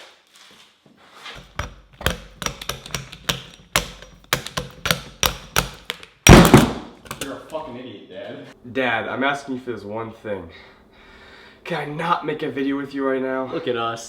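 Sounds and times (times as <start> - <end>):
hammer striking metal weight: 1.4 - 7.4.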